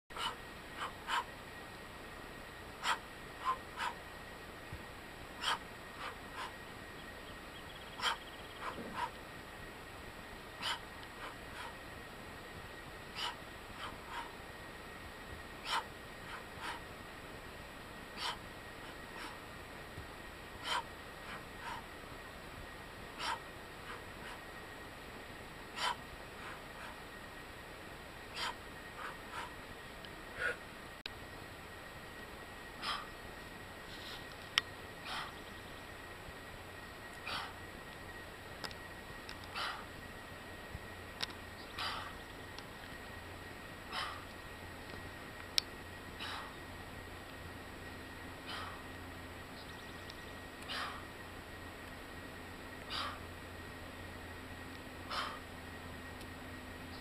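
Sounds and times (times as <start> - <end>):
low steady background noise: 0.1 - 57.0
steady low hiss: 0.1 - 57.0
short sharp breaths: 18.1 - 19.4, 23.2 - 24.5, 25.7 - 27.1, 28.3 - 29.6, 30.3 - 30.7, 32.8 - 33.2, 35.0 - 35.5, 37.1 - 37.7, 39.5 - 40.0, 41.7 - 42.2, 43.9 - 44.3, 46.2 - 46.6, 48.4 - 48.9, 50.6 - 51.1, 52.8 - 53.3, 55.1 - 55.5.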